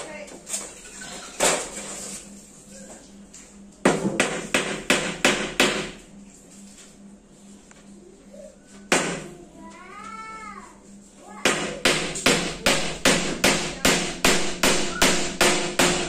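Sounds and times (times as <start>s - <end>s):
hammer blows on wood: 11.4s - 16.0s.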